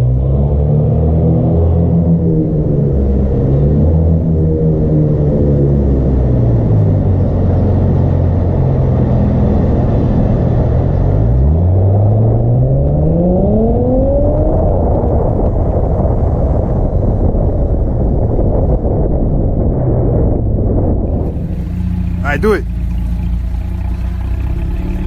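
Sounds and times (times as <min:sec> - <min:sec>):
car engine accelerating: 0:21.1 - 0:25.0.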